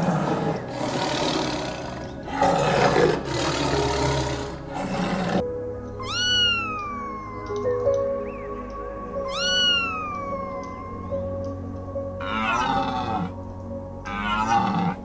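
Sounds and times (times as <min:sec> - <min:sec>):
background music with held notes: 0:00.0 - 0:15.0
rough noisy animal sound: 0:00.0 - 0:15.0
cat meowing: 0:06.0 - 0:11.6.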